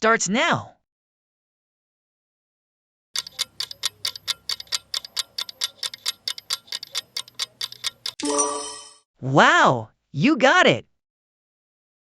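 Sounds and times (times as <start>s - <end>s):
rapid clock ticking: 3.2s - 8.2s.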